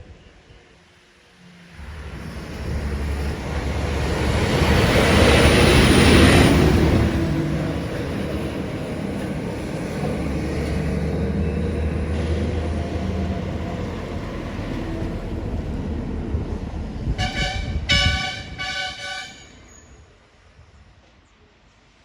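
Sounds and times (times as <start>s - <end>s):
truck diesel engine passing: 1.7s - 18.6s
vehicle horn toots: 17.2s - 19.6s.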